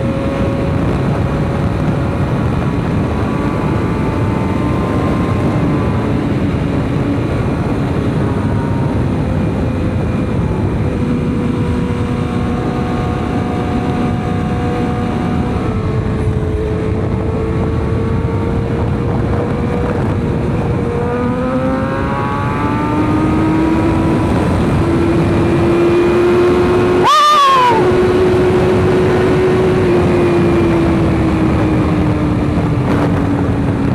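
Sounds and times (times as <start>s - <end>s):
motorcycle engine running: 0.0s - 33.9s
heavy rushing noise: 26.8s - 28.9s.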